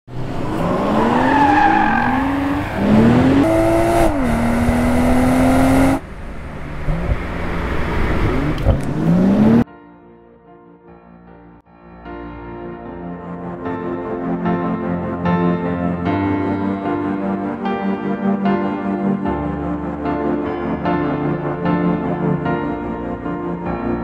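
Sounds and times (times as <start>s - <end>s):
car engine accelerating hard: 0.1s - 9.6s
soft music: 9.6s - 24.0s.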